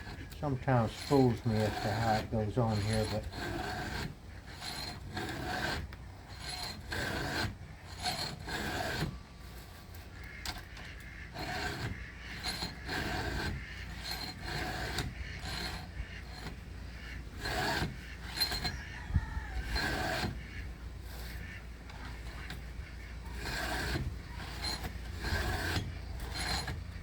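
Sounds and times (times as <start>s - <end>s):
file rasping on chainsaw chain: 0.0s - 27.0s.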